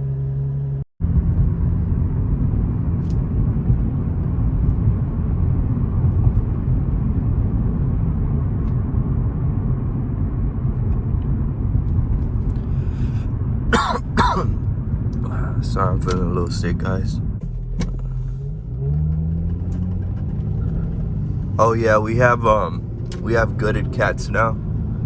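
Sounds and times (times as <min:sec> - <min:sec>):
car engine low rumble: 0:00.0 - 0:25.0
person coughing: 0:13.7 - 0:14.6.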